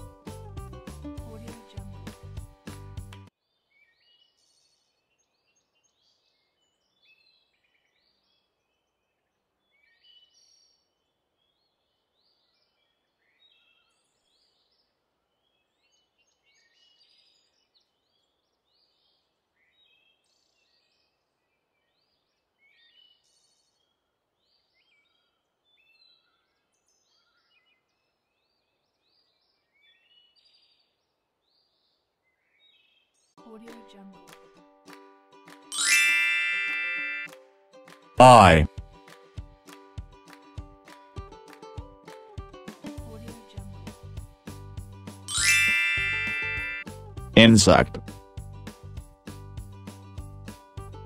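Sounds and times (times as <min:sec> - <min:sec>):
songbirds chirping and warbling: 0:03.4 - 0:33.3
faint outdoor hiss: 0:47.4 - 0:48.0.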